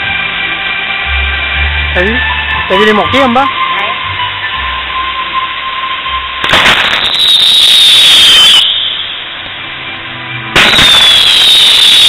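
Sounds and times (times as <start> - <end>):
firework hissing and crackling: 0.0 - 12.0
falling whistle: 2.1 - 9.4, 10.6 - 12.0
firework burst: 5.4 - 9.9, 10.5 - 12.0.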